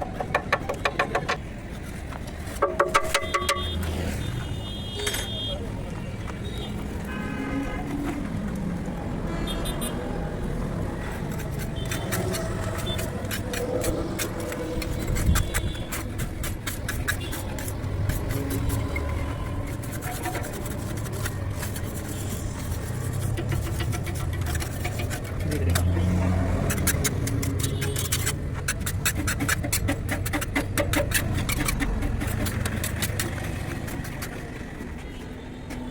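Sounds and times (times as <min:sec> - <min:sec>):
road roller engine running: 0:10.2 - 0:35.9.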